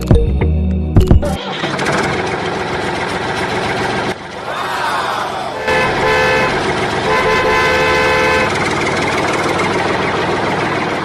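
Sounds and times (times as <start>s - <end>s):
horn toots: 5.5s - 8.6s.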